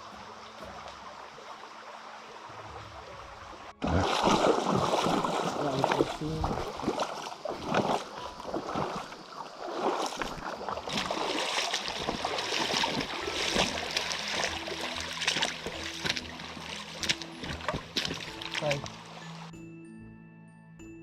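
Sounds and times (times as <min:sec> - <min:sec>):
flowing water: 0:00.0 - 0:19.5
splashing: 0:00.0 - 0:19.5
soft background music: 0:00.0 - 0:21.0.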